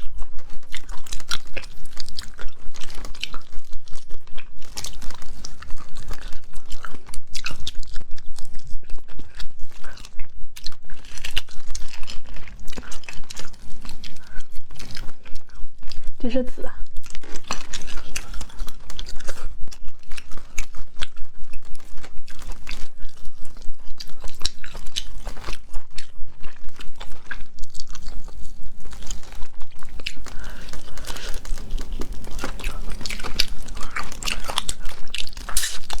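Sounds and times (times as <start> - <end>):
wet chewing: 0.0 - 36.0
crunching bites of shellfish: 16.9 - 36.0.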